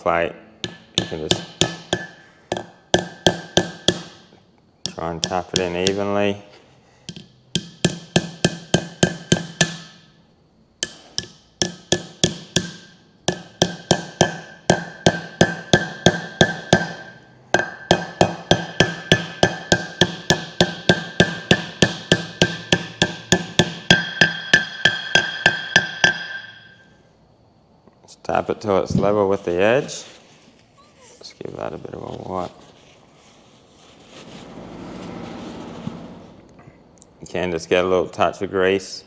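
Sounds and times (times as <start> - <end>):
hammer tapping on metal plate: 0.6 - 4.2, 4.8 - 6.0, 7.1 - 10.0, 10.8 - 26.8.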